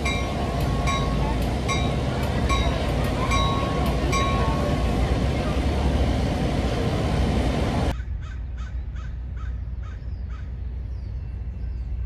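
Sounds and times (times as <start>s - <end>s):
loud rush of noise: 0.0s - 7.9s
low steady rumble: 0.0s - 12.0s.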